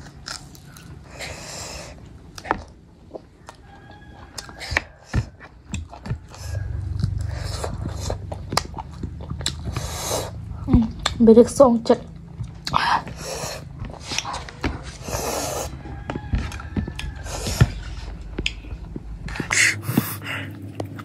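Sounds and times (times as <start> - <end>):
chewing and biting: 0.0 - 11.2, 12.0 - 21.0
low rumble: 5.8 - 21.0.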